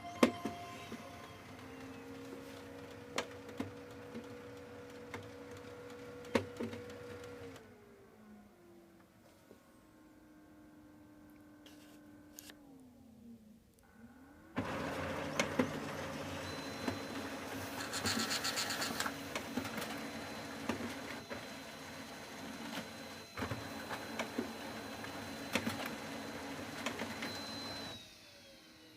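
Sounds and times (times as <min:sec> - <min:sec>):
laser printer running: 0:00.0 - 0:04.4, 0:14.6 - 0:28.9.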